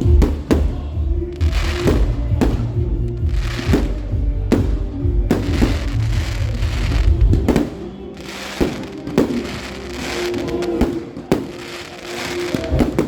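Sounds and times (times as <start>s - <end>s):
fireworks bangs: 0.0s - 13.0s
music playing: 0.0s - 13.0s.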